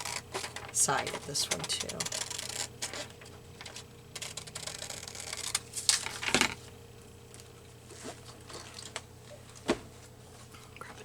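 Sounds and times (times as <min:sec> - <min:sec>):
scissors snipping paper: 0:00.0 - 0:06.2
paper rustling: 0:00.0 - 0:06.7.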